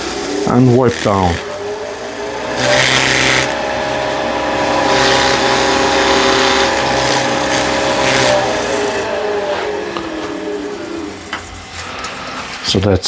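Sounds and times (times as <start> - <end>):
rag rubbing on spinning wood: 0.0 - 9.8
lathe motor whining: 0.0 - 13.0.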